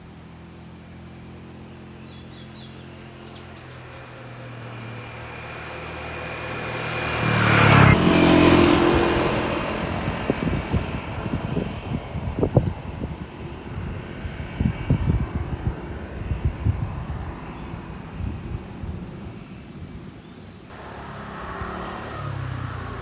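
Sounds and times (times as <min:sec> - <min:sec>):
vehicle passing by: 0:00.6 - 0:19.7, 0:20.6 - 0:23.0
wind buffeting microphone: 0:03.6 - 0:20.8.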